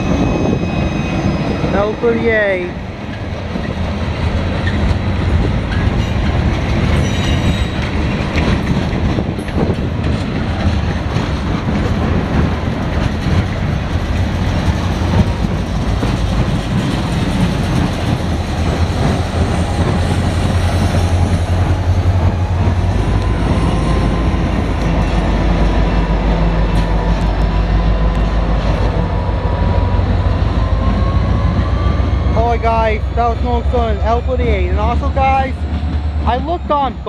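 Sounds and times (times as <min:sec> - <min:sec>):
low train rumble: 0:00.0 - 0:37.0
train wheels clacking over rail joints: 0:03.1 - 0:25.2.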